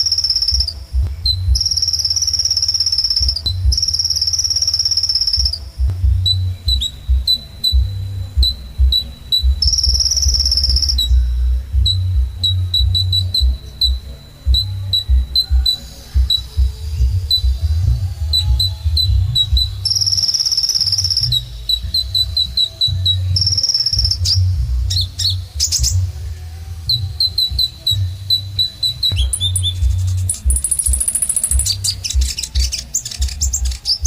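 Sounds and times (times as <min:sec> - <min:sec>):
sunbird singing: 0:00.0 - 0:34.0
low rumble: 0:05.4 - 0:20.2.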